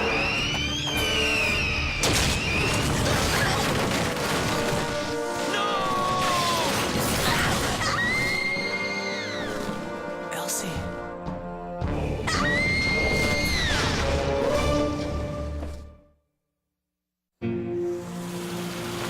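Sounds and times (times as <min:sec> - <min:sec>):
dramatic cartoon action score: 0:00.0 - 0:15.7
crash: 0:02.0 - 0:08.3
monster screeching: 0:05.5 - 0:09.6, 0:12.3 - 0:14.1.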